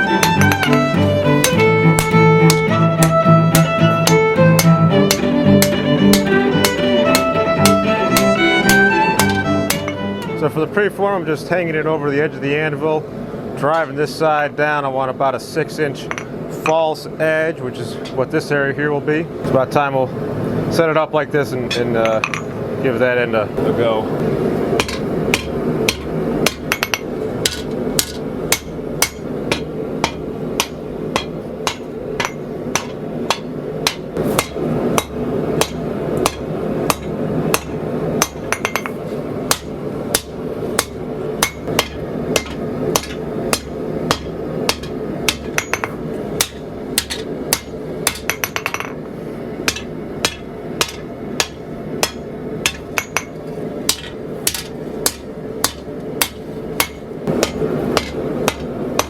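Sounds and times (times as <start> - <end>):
hammer striking steel on anvil: 0.1 - 10.1, 21.7 - 22.6, 24.8 - 49.0, 49.6 - 59.0.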